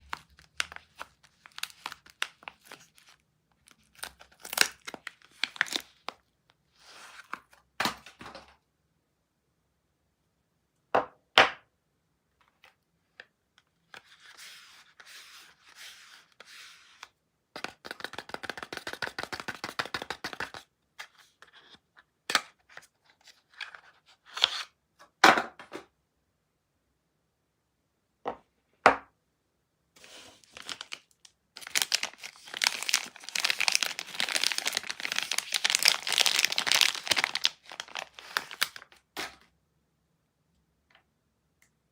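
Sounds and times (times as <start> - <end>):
wrappers crinkling and tearing: 0.0 - 6.1, 30.4 - 39.4.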